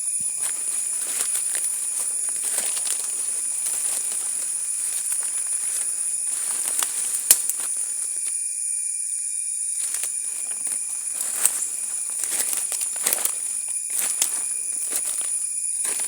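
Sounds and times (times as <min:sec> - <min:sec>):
high-pitched insect chorus: 0:00.0 - 0:16.0
crackles and clicks: 0:04.9 - 0:07.7, 0:09.8 - 0:15.2.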